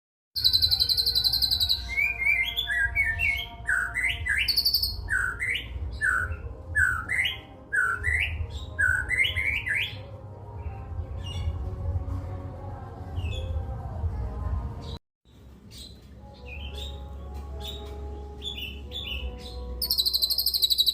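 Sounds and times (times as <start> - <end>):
bird singing whistled notes: 0.4 - 10.1, 15.7 - 20.9.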